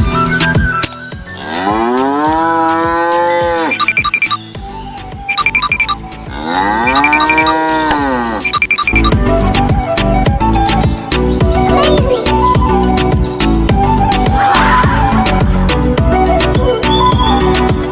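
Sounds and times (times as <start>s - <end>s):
cow mooing: 1.4s - 3.8s, 6.3s - 8.6s.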